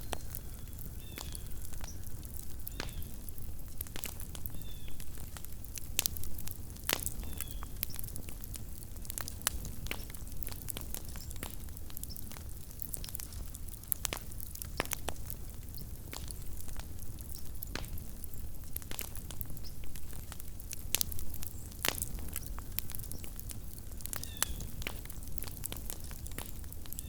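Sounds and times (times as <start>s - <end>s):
campfire crackling: 0.0s - 27.0s.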